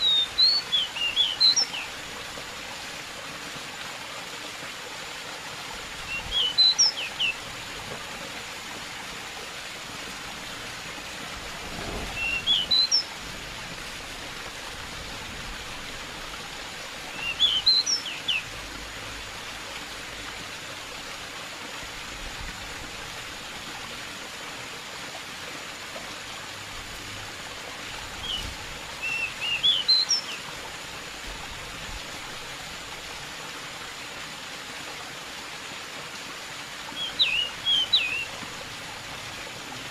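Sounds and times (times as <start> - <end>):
stream water rushing: 0.0 - 39.9
bird chirping: 6.1 - 7.4, 12.1 - 13.1, 17.1 - 18.4, 28.2 - 30.4, 37.0 - 38.3.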